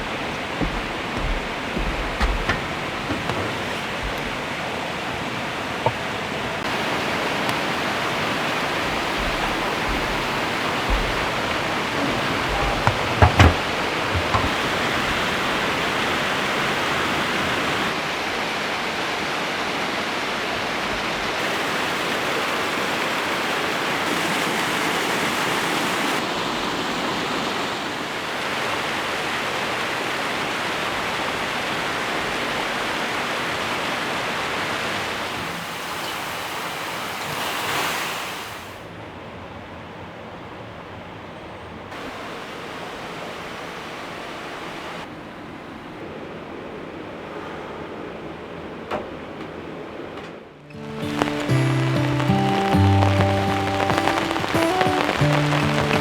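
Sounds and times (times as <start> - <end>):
short knocks: 0.0 - 6.7, 8.3 - 15.4
rushing water: 0.0 - 38.9, 42.0 - 47.1, 50.7 - 56.0.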